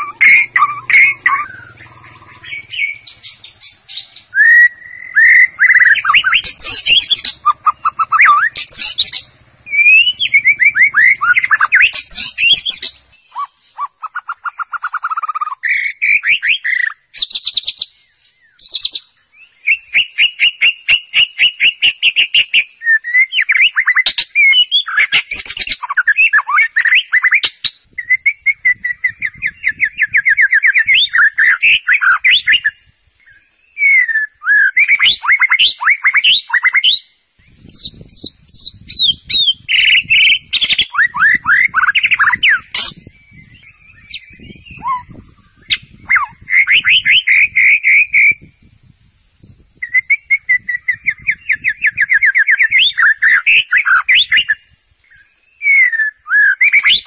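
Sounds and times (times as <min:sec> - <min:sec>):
songbird whistles and trills: 0:00.0 - 0:57.0.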